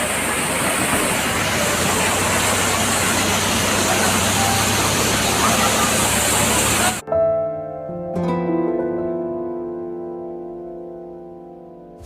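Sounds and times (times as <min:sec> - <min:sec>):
waterfall roaring: 0:00.0 - 0:07.0.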